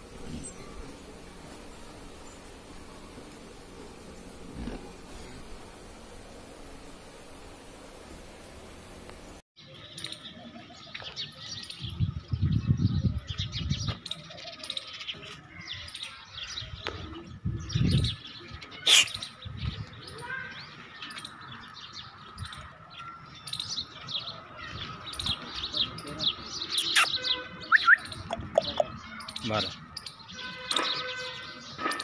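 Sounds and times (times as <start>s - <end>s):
small birds chirping: 9.6s - 32.0s.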